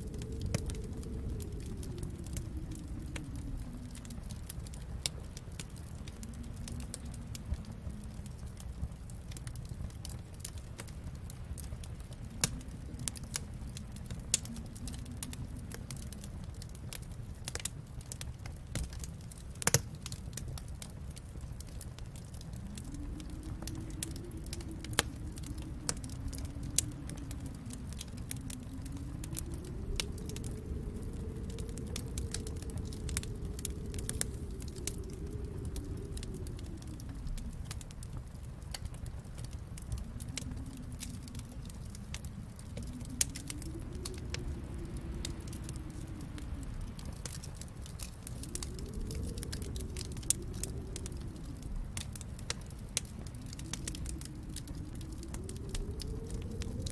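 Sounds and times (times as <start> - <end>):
low moaning tone: 0.0 - 8.4, 22.3 - 56.9
wood fire crackling and popping: 0.0 - 56.9.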